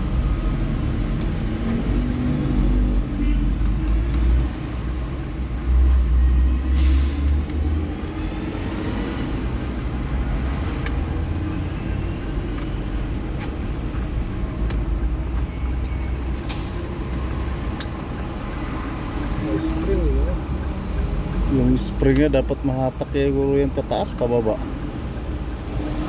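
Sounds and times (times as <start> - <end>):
motor vehicle rumble: 0.0 - 26.0.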